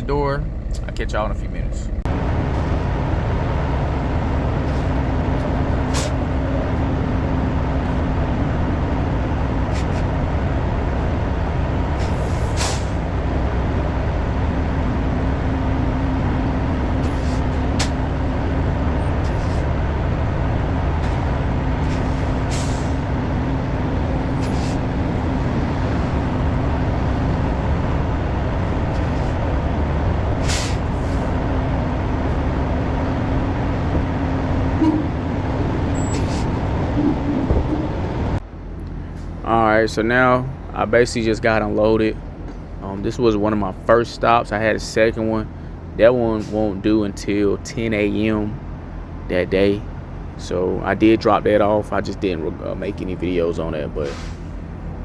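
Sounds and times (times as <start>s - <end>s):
truck diesel engine droning: 0.0s - 55.0s
air brake hisses: 12.0s - 13.0s, 21.8s - 23.0s, 30.4s - 31.3s, 54.0s - 54.6s.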